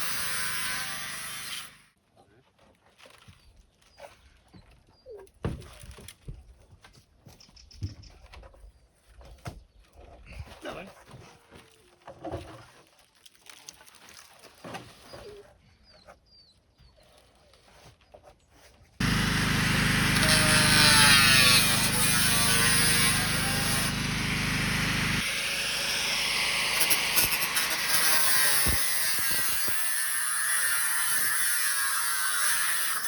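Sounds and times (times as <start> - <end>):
machine humming and whining: 19.0 - 28.8.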